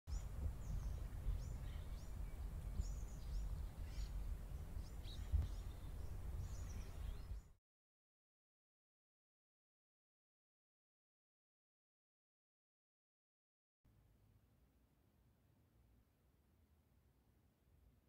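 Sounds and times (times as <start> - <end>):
birds chirping: 0.1 - 7.6.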